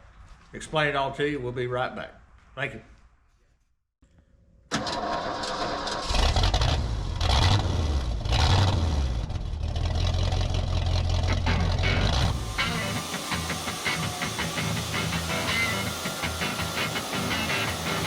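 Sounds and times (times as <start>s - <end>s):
heavy engine starting and revving: 4.7s - 18.0s.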